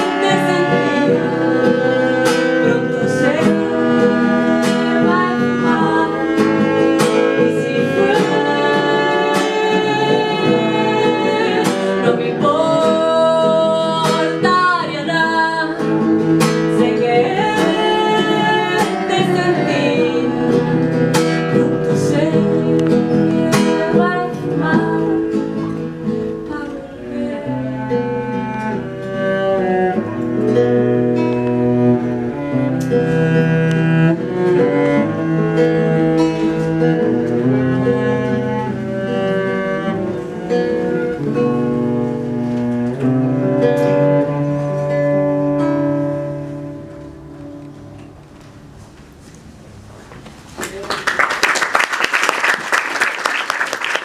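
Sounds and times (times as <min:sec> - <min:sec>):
bowed string gliding: 0:00.0 - 0:12.5
plucked guitar: 0:00.0 - 0:49.3.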